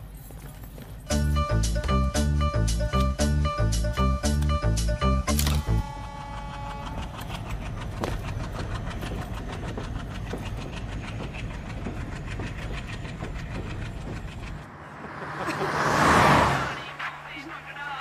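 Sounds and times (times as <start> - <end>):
wheels clickety-clack: 5.6 - 15.9
train rumbling past: 5.6 - 18.0.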